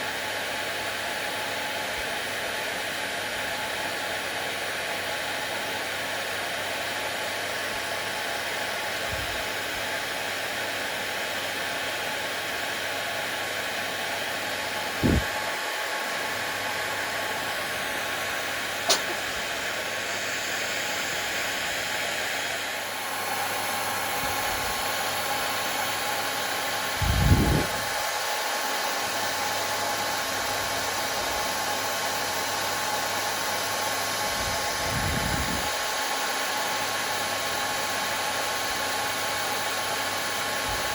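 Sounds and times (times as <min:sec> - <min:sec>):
hair dryer blowing: 0:00.0 - 0:40.9
sharp click: 0:18.9 - 0:19.2.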